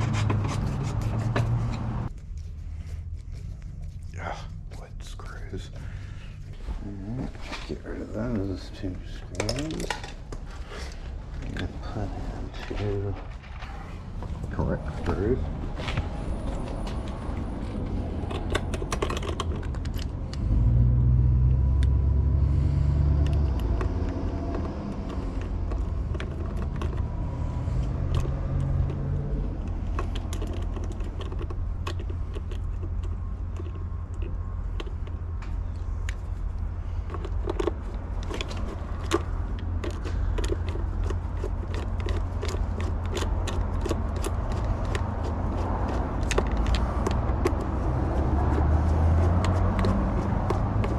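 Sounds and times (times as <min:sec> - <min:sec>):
low rumble: 0:10.0 - 0:18.9
metal clicks of lock hardware: 0:18.3 - 0:20.1.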